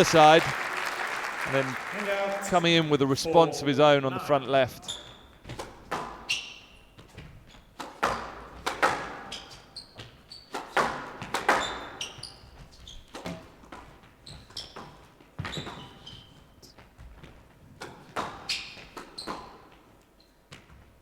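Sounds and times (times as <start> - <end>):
shoes squeaking on court floor: 4.7 - 21.0
squash ball hits echoing: 7.8 - 9.3, 10.6 - 12.2.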